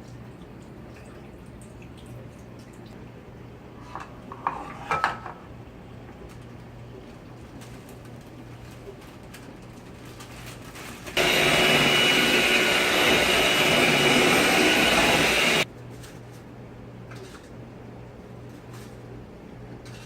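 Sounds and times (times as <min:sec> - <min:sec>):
electric mixer whining: 0:11.2 - 0:15.7.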